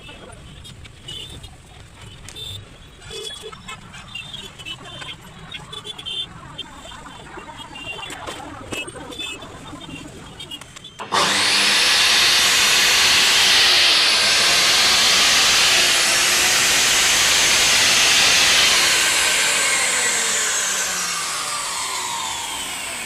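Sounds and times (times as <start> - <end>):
chop saw motor whining: 11.0 - 23.0.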